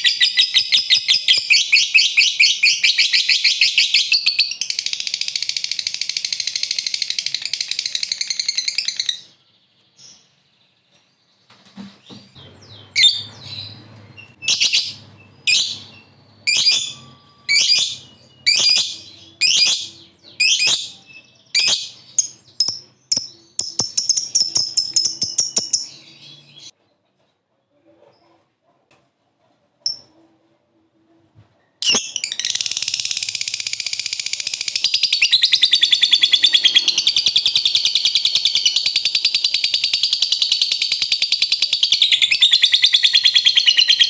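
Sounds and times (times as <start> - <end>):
shrill bird calls: 0.0 - 10.3, 12.6 - 26.7, 31.8 - 44.0
bird chattering trill: 14.4 - 26.7.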